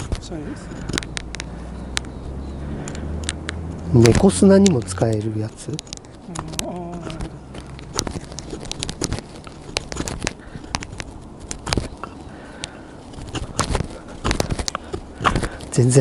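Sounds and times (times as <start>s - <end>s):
fire crackling and popping: 3.2s - 16.0s.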